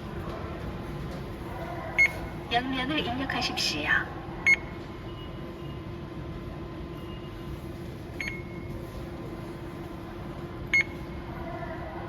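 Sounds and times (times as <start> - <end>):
touchscreen beeps: 4.5 - 5.8, 8.2 - 8.7, 10.7 - 11.0.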